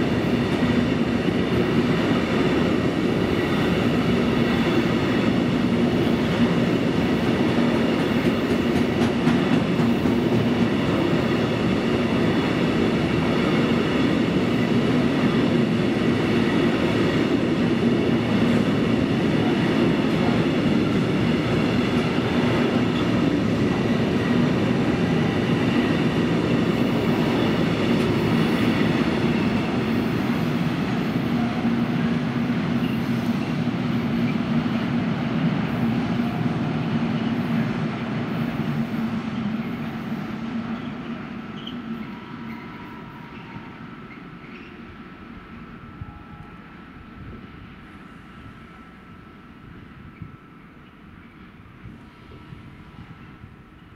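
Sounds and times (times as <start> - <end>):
freight train wheels rumbling: 0.0 - 53.9.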